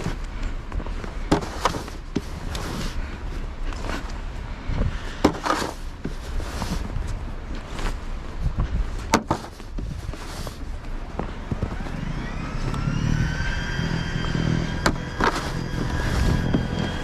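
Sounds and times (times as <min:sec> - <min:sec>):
motor running with low rumble: 0:09.8 - 0:17.0.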